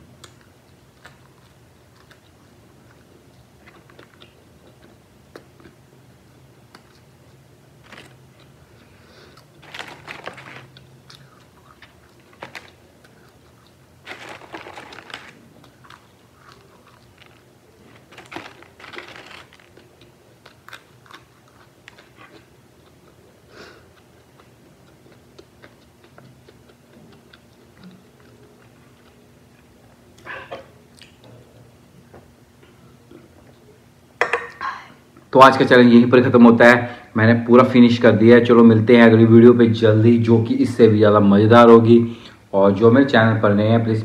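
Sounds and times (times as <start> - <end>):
crunching french fries: 0.2 - 5.8, 6.7 - 30.2.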